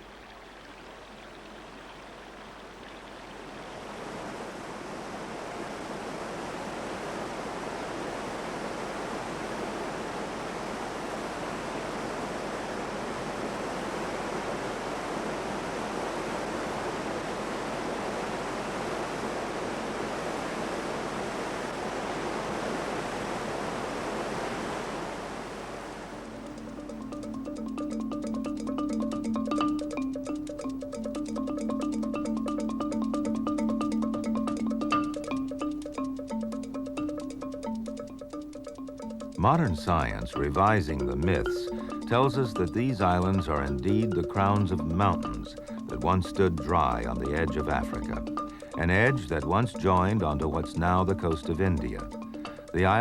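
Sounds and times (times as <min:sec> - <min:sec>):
rushing water: 0:00.0 - 0:28.0.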